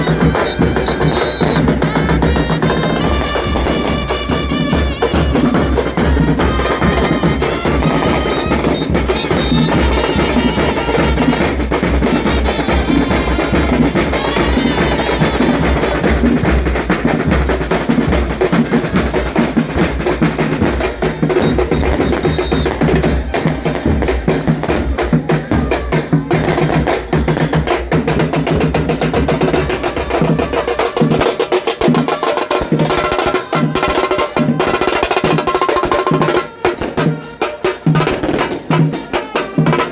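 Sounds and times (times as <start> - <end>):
bass drums beating: 0.0 - 30.4
drum band playing: 0.0 - 39.9
snare drums beating: 0.0 - 39.9.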